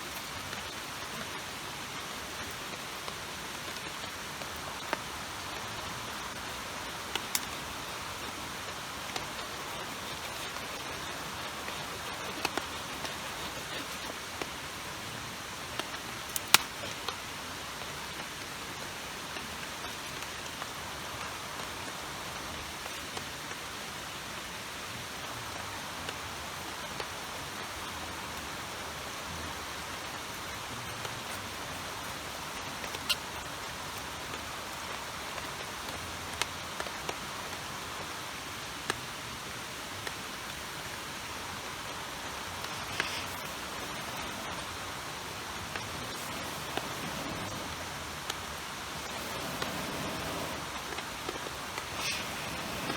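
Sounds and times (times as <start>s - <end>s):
rain hissing: 0.0s - 52.9s
river water rushing: 41.0s - 52.9s.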